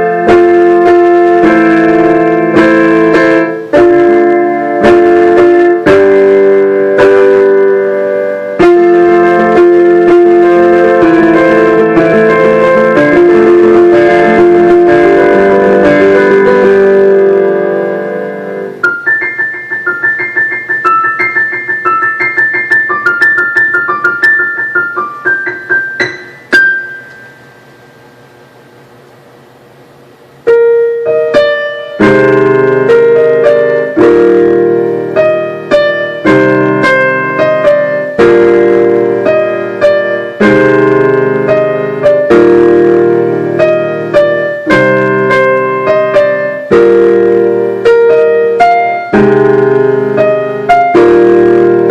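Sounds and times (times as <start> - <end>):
piano playing: 0.0 - 51.9.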